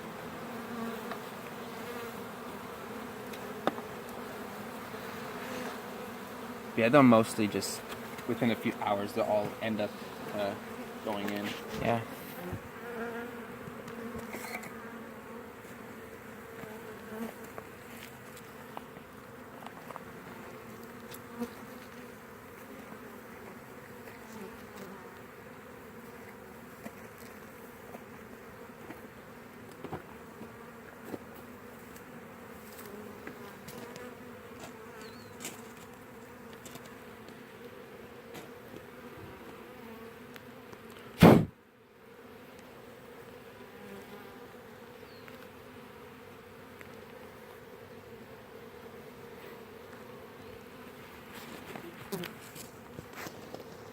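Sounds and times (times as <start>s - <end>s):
bee swarm buzzing: 0.0s - 53.9s
sharp knock: 41.2s - 41.5s.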